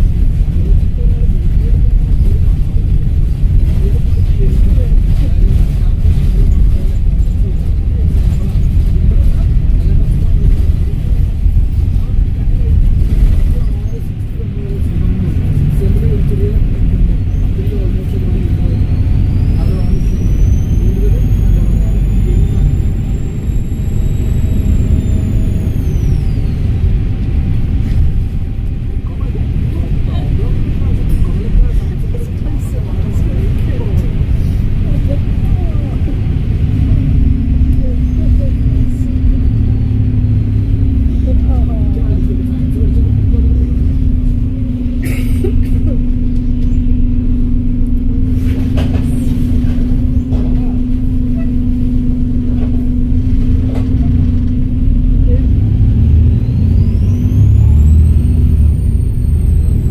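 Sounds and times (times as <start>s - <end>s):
bus diesel engine rumbling: 0.0s - 59.9s
turbocharger whistle: 56.3s - 59.9s.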